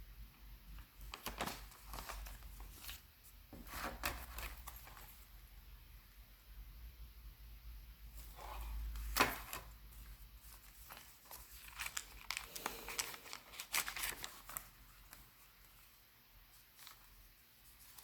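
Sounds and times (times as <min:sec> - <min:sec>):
paper pages rustling: 0:00.8 - 0:05.3, 0:08.2 - 0:18.0.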